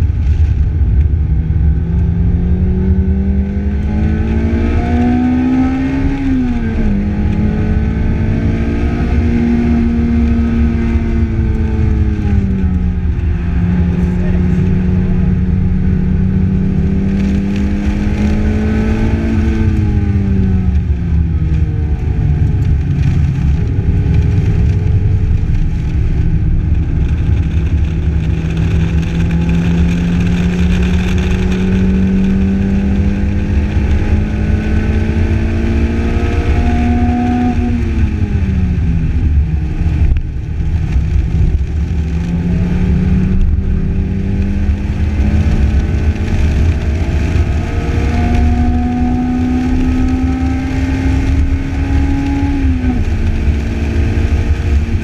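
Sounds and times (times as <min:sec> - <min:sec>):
car engine under load: 0:00.0 - 0:55.0
rush of wind: 0:00.0 - 0:55.0.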